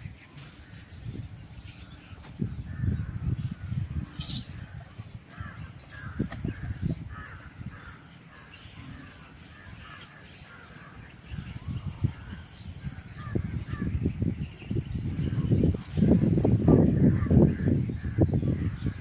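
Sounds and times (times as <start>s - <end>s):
wind gusts on microphone: 0.0s - 8.0s, 10.9s - 19.0s
birds cawing: 4.6s - 11.3s.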